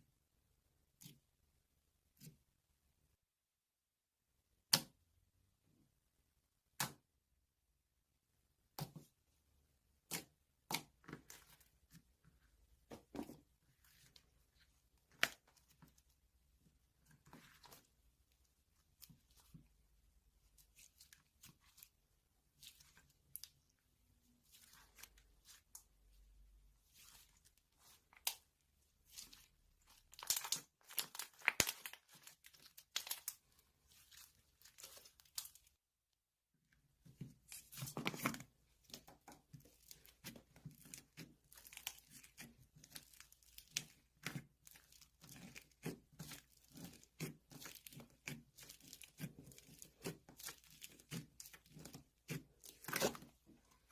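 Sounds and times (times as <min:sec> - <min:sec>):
material crinkling and tearing: 0:26.9 - 0:35.8, 0:37.4 - 0:53.9.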